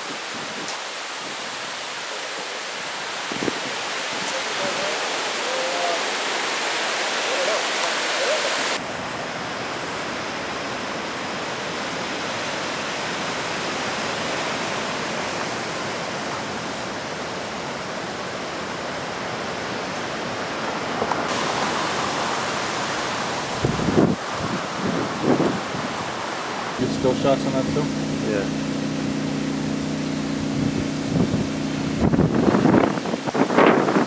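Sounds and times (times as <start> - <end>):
river rushing: 0.0 - 34.0.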